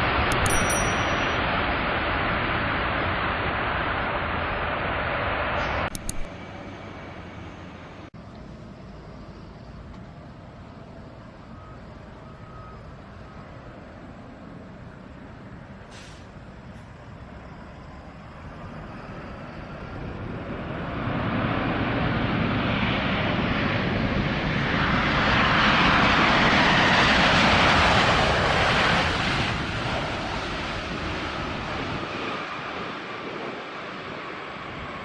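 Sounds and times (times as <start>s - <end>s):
jet airliner passing: 17.4s - 35.0s.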